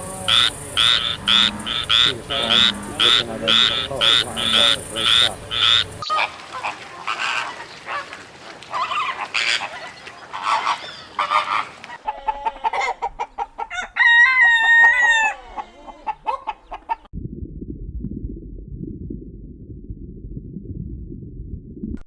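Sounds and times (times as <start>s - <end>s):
rooster crowing: 0.0s - 6.0s, 13.6s - 16.5s
chickens clucking: 0.0s - 8.1s, 8.7s - 13.9s, 15.1s - 17.1s.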